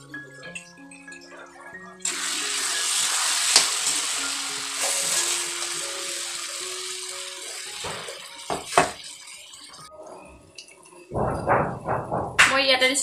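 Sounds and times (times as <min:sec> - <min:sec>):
faint background music: 0:00.0 - 0:13.0
greens sizzling in hot oil: 0:02.0 - 0:09.9.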